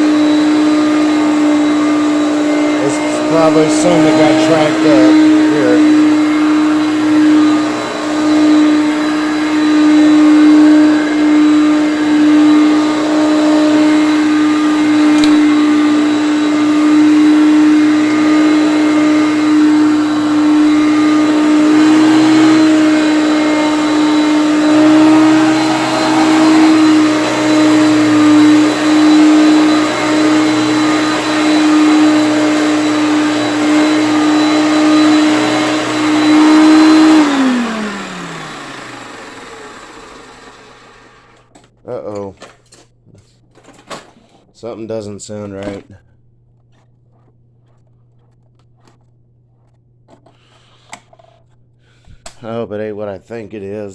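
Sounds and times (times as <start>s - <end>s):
vacuum cleaner motor whine: 0.0s - 41.6s.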